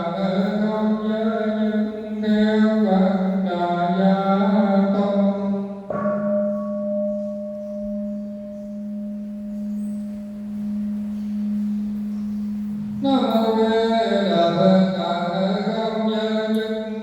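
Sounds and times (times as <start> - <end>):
bowl bell ringing: 5.9 - 14.6.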